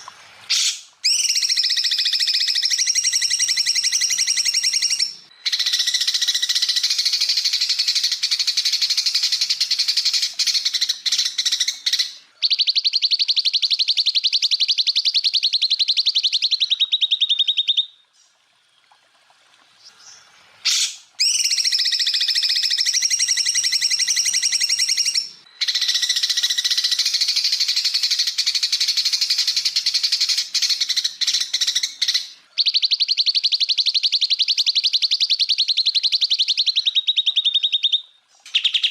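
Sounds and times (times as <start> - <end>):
bird singing rapid rattling notes: 0.0 - 19.1, 19.8 - 38.9.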